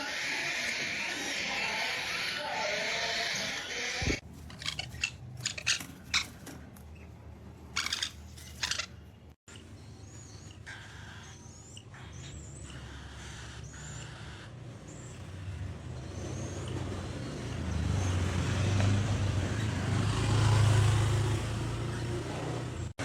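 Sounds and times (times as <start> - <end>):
parrot squawking: 0.0 - 6.5, 7.7 - 14.7
parrot chirping: 0.0 - 18.2.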